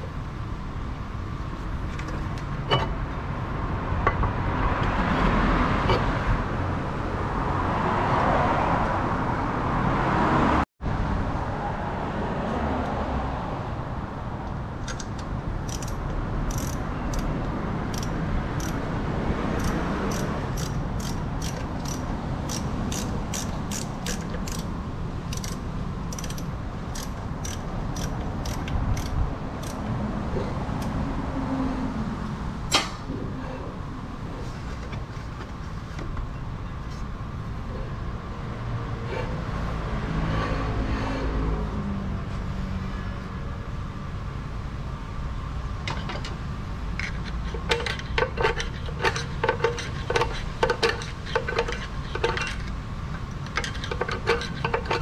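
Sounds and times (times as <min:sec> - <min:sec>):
ratchet wrench clicking: 0:14.9 - 0:18.9, 0:19.6 - 0:24.7, 0:25.3 - 0:29.8, 0:47.0 - 0:52.7, 0:53.4 - 0:55.0.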